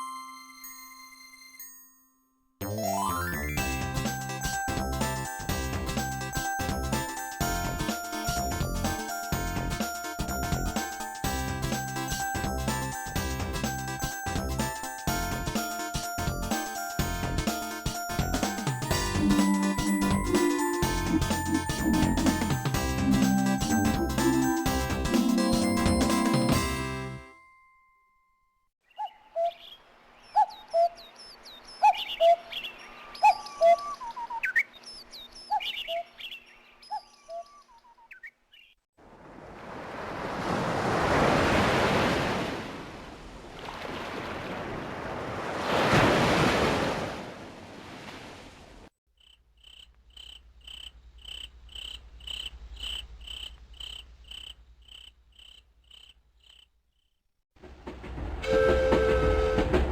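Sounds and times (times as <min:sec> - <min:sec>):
bird chirps and whistles: 0:31.7 - 0:32.6, 0:33.2 - 0:34.8
cricket-like chirping: 0:49.2 - 0:57.2.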